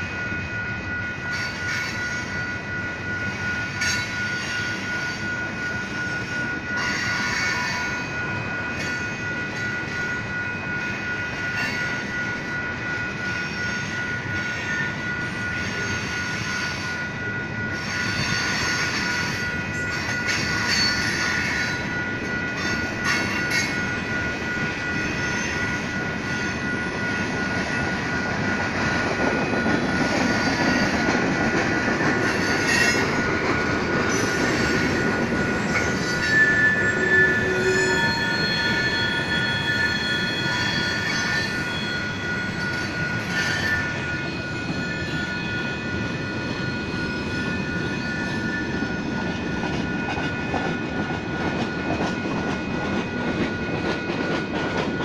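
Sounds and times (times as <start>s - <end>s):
crossing warning bell: 0.0s - 55.0s
steel wheels squealing: 0.2s - 55.0s.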